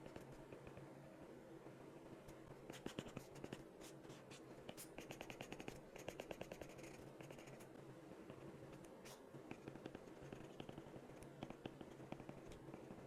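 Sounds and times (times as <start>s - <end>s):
pen tapping and scratching: 4.7s - 7.6s, 9.5s - 13.0s.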